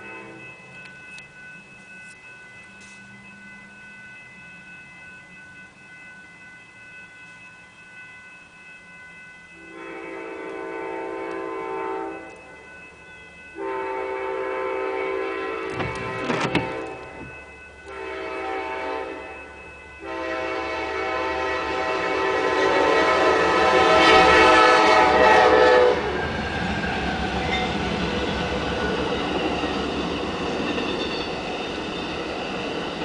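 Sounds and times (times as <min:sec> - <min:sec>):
steady high ringing tone: 0:00.0 - 0:33.0
locomotive air horn blasts: 0:09.7 - 0:12.3, 0:13.6 - 0:17.2, 0:17.9 - 0:19.3, 0:20.0 - 0:26.1.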